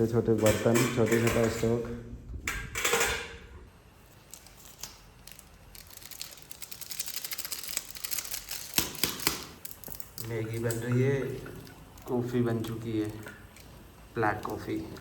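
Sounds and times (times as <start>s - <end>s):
camp pots clicking and tapping: 0.3s - 1.8s
food packet crinkling: 4.0s - 14.6s.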